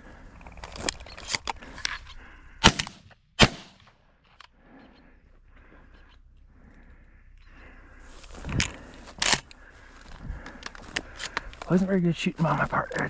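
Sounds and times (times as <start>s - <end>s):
shotgun shots: 2.6s - 3.9s
light clicks and rustling: 8.2s - 11.9s.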